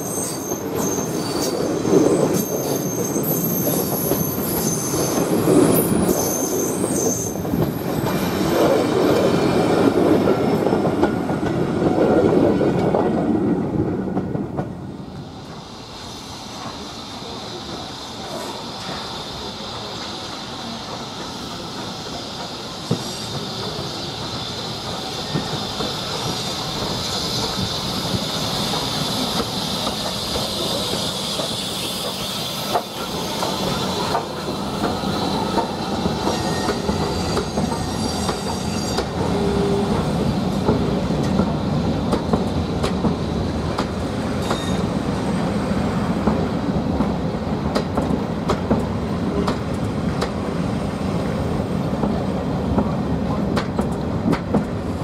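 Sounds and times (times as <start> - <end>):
train wheels squealing: 0.0 - 9.6, 15.2 - 46.1.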